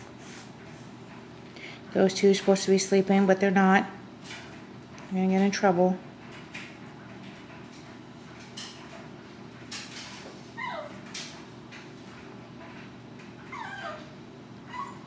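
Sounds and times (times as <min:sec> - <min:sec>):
puppies whining: 0:10.5 - 0:11.2, 0:13.3 - 0:15.0.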